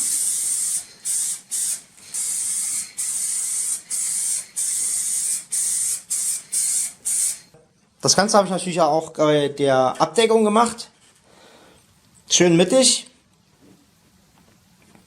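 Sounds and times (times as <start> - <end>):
spray paint can hissing: 0.0 - 7.6.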